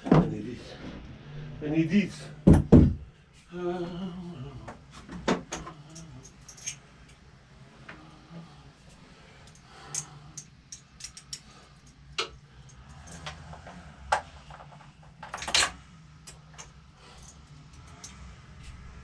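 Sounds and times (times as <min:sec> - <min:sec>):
tools clattering: 0:05.5 - 0:06.8, 0:09.4 - 0:18.2
metal hand tools clinking: 0:05.8 - 0:06.8, 0:09.4 - 0:12.0.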